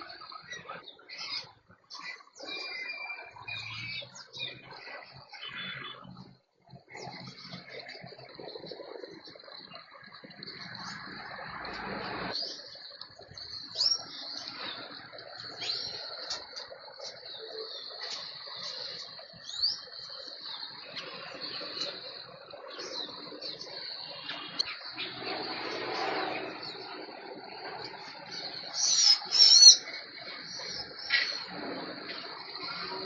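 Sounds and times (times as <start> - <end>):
birds chirping: 0.0 - 33.0
high insect drone: 3.5 - 33.0.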